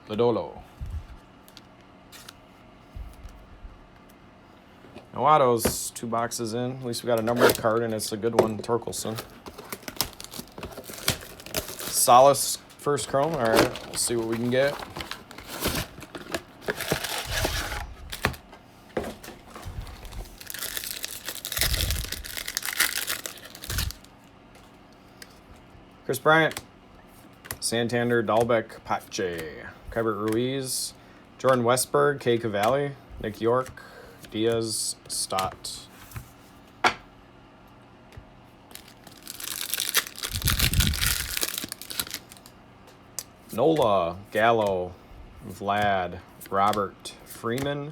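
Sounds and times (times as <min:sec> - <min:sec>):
card pack wrapper tearing and crinkling: 0:07.2 - 0:08.0, 0:09.0 - 0:18.5, 0:19.4 - 0:24.1, 0:38.7 - 0:42.5.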